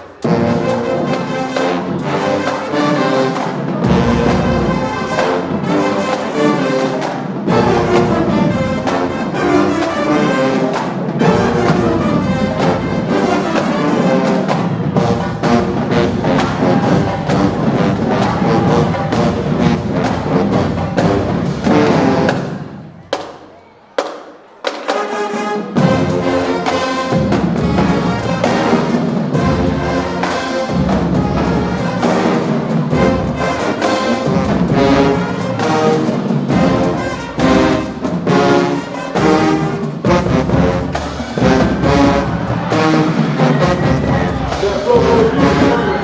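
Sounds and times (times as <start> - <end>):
marching band brass playing: 0.0 - 23.3, 24.0 - 46.0
drumline percussion: 0.0 - 46.0.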